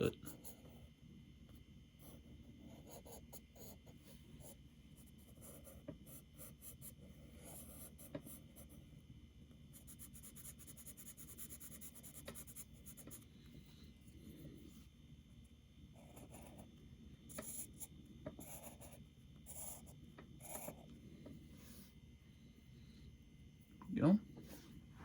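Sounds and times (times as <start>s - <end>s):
pencil scratching on paper: 2.0s - 8.9s, 9.7s - 14.9s, 15.9s - 22.0s.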